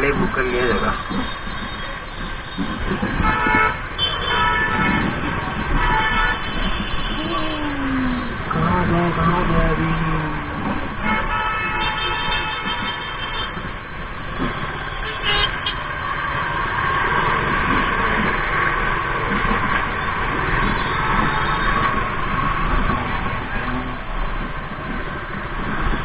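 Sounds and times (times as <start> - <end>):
road traffic: 0.0 - 26.0
car horn toot: 11.1 - 13.6.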